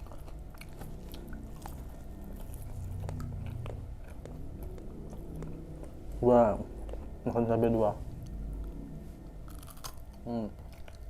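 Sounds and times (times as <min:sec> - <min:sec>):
chewing fried snacks: 0:00.0 - 0:11.0
low hum: 0:00.0 - 0:11.0.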